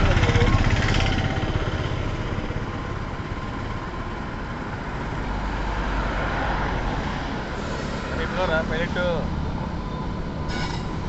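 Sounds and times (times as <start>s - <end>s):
train pulling out slowly: 7.4s - 11.0s.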